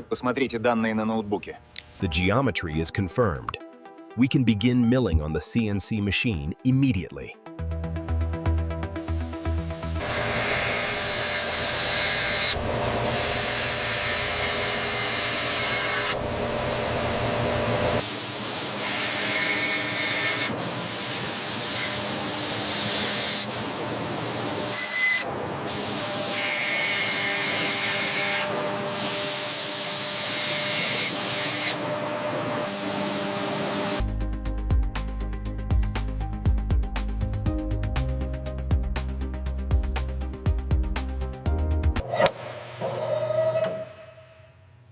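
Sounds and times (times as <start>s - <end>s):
power tools grinding metal: 9.9s - 18.0s, 18.7s - 20.6s.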